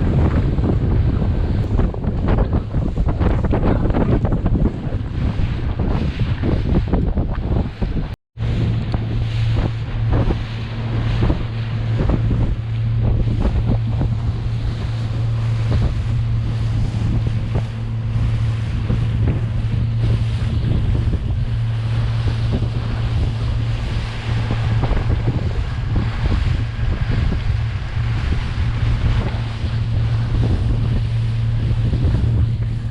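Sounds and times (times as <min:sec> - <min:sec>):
motorboat engine droning: 0:00.0 - 0:32.9
water splashing against hull: 0:00.0 - 0:32.9
wind buffeting microphone: 0:00.0 - 0:32.9.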